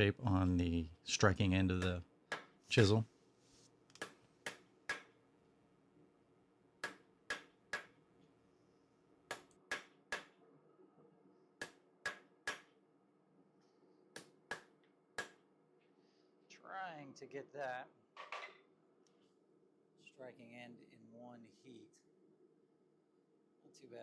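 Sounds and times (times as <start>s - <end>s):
faint steady hum: 0.0s - 7.0s.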